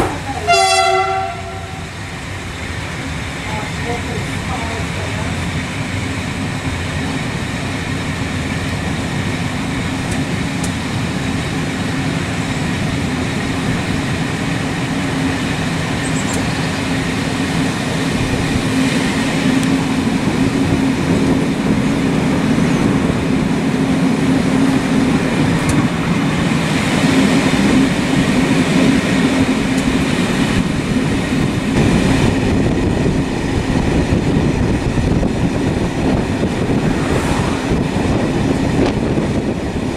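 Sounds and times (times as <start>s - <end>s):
vehicle running noise: 34.2s - 39.9s.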